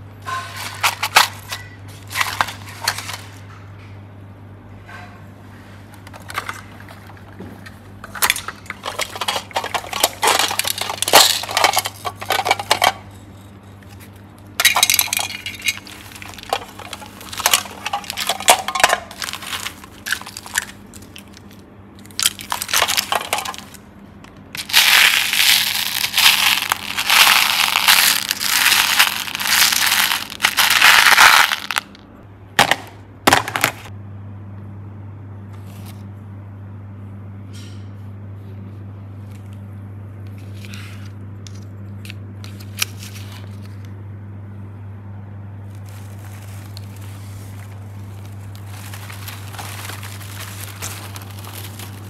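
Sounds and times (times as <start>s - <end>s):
low steady hum: 0.0s - 52.0s
plastic toys clattering: 0.3s - 3.4s, 6.0s - 32.0s, 45.7s - 52.0s
plastic beads rattling: 8.0s - 14.0s, 14.6s - 23.8s, 24.5s - 32.0s, 45.8s - 52.0s.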